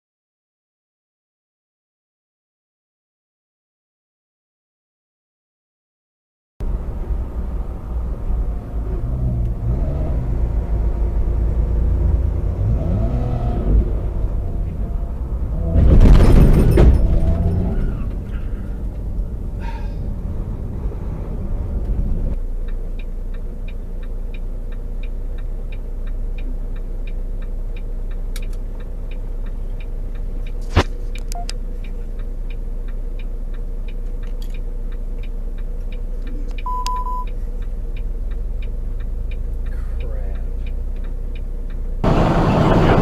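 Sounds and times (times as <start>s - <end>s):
truck engine rumbling: 6.6s - 43.0s
light regular ticking: 22.3s - 42.0s
sharp click: 30.5s - 31.6s
short single-tone beep: 31.3s - 31.5s, 36.6s - 37.4s.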